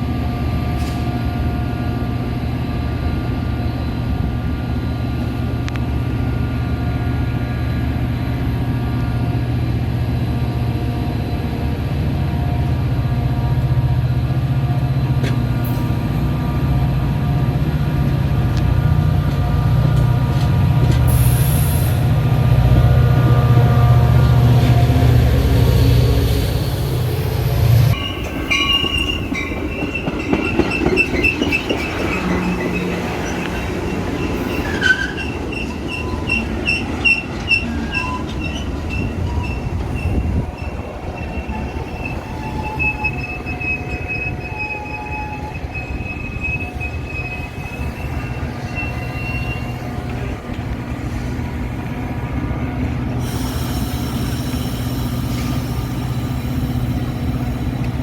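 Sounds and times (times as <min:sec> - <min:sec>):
train rumbling on rails: 0:00.0 - 0:58.0
train wheels squealing: 0:24.5 - 0:52.2, 0:53.1 - 0:58.0.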